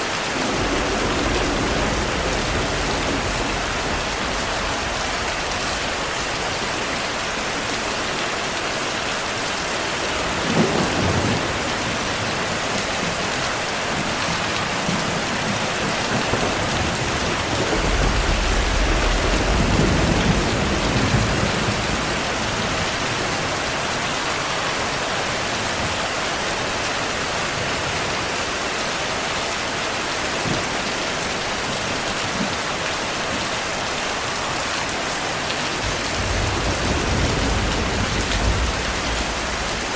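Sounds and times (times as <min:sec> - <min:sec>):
heavy rain: 0:00.0 - 0:39.9
thunder cracking and rumbling: 0:00.3 - 0:07.8, 0:10.0 - 0:23.8, 0:35.7 - 0:39.9.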